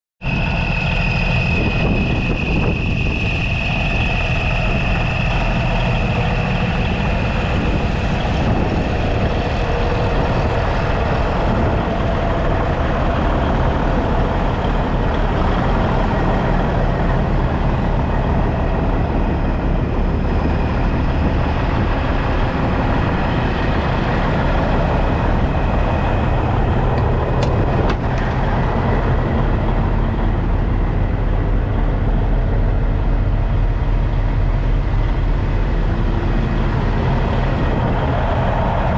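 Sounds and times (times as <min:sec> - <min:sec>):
high thin whine: 0:00.2 - 0:38.9
tractor engine running: 0:00.2 - 0:38.9.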